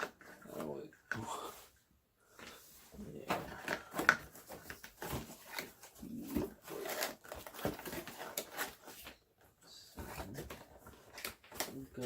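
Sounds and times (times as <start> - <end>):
cardboard packaging rustling: 2.9 - 9.2.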